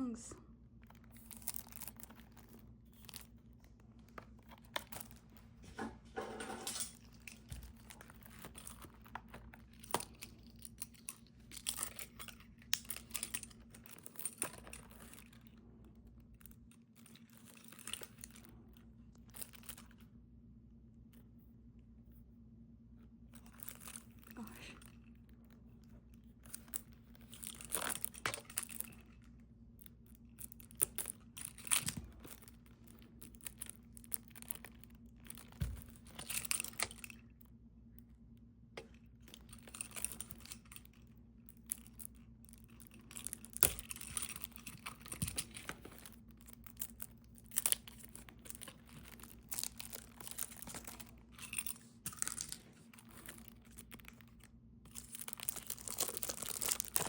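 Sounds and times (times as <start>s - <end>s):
plastic wrapping crinkling and tearing: 41.6s - 57.0s.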